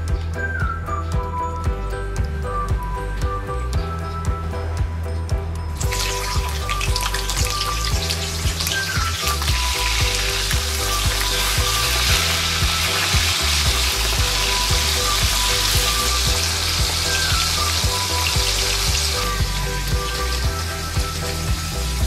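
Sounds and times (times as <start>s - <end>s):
beans sizzling in hot oil: 5.8s - 22.0s.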